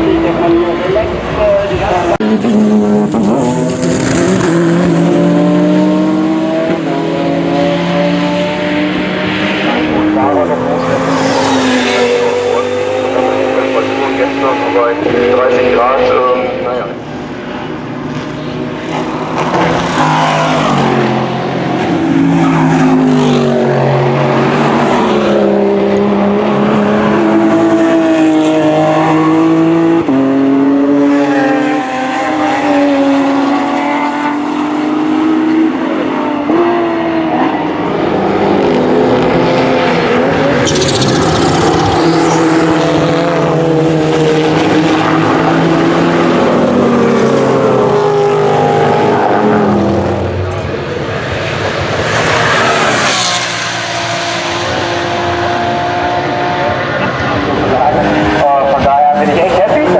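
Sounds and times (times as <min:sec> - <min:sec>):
racing car engines passing: 0:00.0 - 0:59.9.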